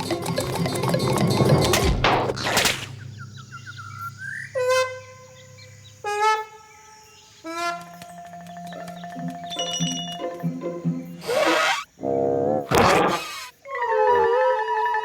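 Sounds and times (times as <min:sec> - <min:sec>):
rising chirps: 0:00.4 - 0:15.0
short honking calls: 0:04.3 - 0:06.8, 0:07.4 - 0:08.5
cartoon music: 0:08.6 - 0:11.9.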